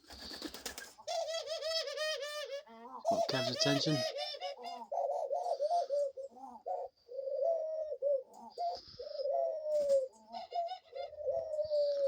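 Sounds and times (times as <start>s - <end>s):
doves cooing: 0.0s - 12.0s.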